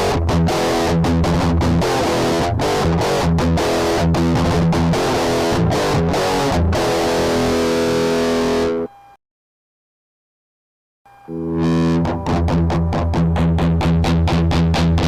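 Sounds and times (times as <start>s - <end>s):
distorted electric guitar riff: 0.0s - 8.9s, 11.3s - 15.0s.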